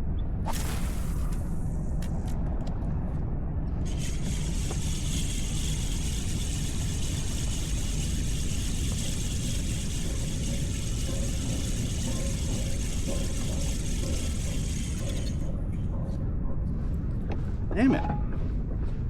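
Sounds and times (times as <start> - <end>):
hiss: 3.9 - 15.4.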